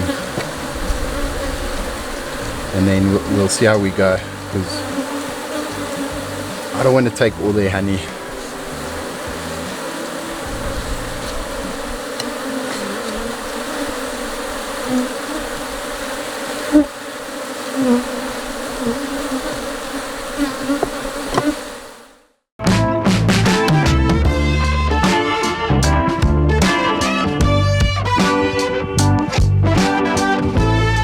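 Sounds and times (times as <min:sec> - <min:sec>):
honeybees buzzing: 0:00.0 - 0:22.3
short knocks: 0:20.8 - 0:21.6.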